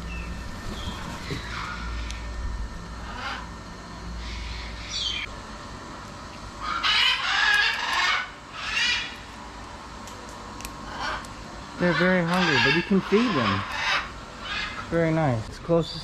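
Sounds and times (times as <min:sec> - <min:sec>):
parrots squawking: 0:00.8 - 0:02.2, 0:03.0 - 0:03.5, 0:04.2 - 0:05.3, 0:06.6 - 0:09.3, 0:10.8 - 0:15.0.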